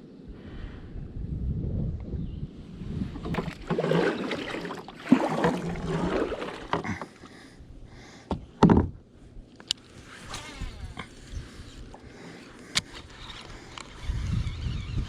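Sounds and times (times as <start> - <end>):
water splashing around kayak: 3.1 - 7.3.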